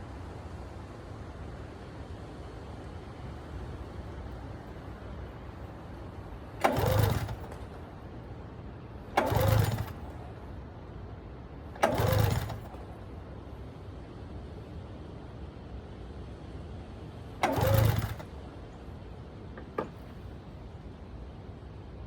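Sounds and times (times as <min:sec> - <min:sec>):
engine cranking without firing: 0:04.1 - 0:10.7, 0:11.5 - 0:13.2, 0:17.3 - 0:18.8, 0:19.5 - 0:20.8
recoil pull-starter: 0:06.3 - 0:10.5, 0:11.7 - 0:13.1, 0:17.4 - 0:18.4, 0:19.5 - 0:20.4.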